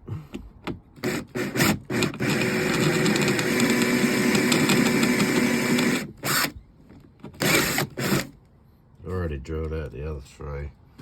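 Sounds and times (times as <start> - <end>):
power drill drilling: 1.0 - 6.6, 7.4 - 8.3.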